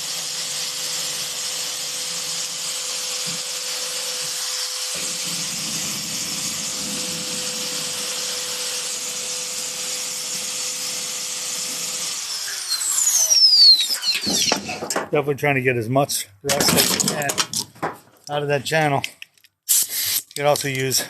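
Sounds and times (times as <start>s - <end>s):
grinder whining on metal: 0.0s - 15.0s.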